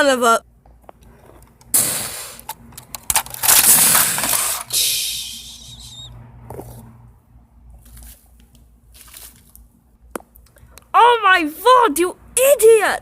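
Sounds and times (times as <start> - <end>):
toy train crashing: 1.8 - 5.4
plastic pieces clicking and knocking: 2.4 - 4.7.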